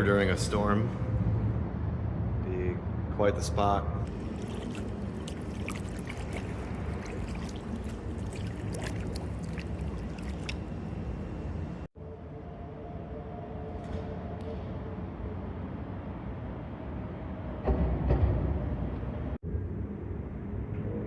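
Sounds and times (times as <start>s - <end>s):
water dripping off paddle: 4.1s - 11.9s.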